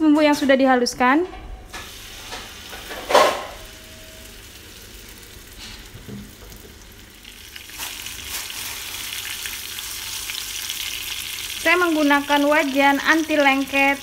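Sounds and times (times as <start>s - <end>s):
spice paste sizzling in oil: 3.6s - 14.0s.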